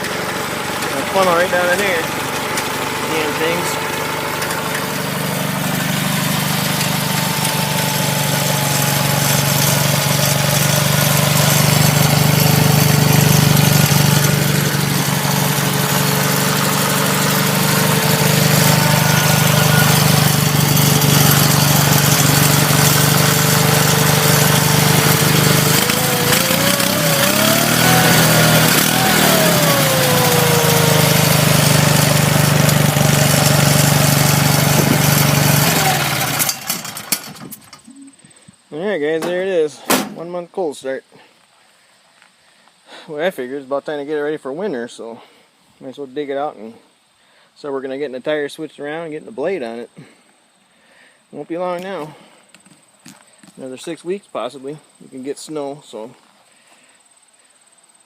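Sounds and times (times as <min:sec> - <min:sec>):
garden tractor engine running: 0:00.0 - 0:37.9.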